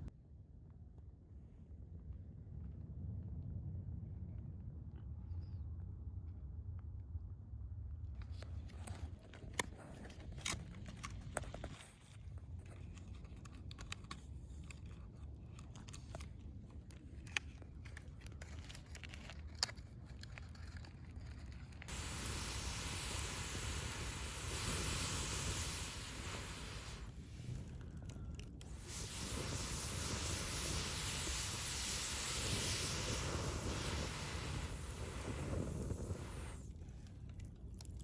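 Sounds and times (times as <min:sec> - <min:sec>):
wood fire crackling and popping: 0:17.2 - 0:36.6
loud rushing hiss: 0:21.9 - 0:27.2, 0:28.7 - 0:36.6.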